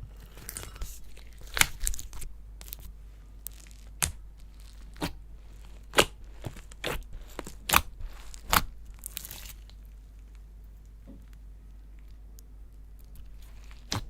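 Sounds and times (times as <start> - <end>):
faint handling of slime: 0.0 - 12.2, 12.9 - 14.0
slime crackling and popping: 0.4 - 10.4, 13.0 - 14.0.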